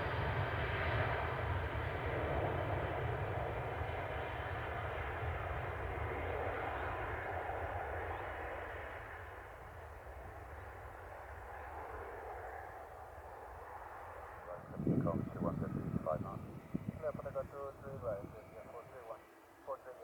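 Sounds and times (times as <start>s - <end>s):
jet engines at taxi power: 0.0s - 20.0s.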